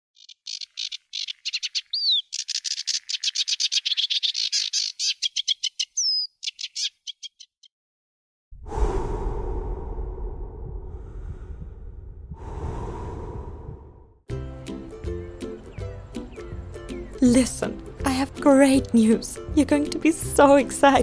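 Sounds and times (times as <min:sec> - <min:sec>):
songbird trilling and whistling: 0:00.2 - 0:07.7.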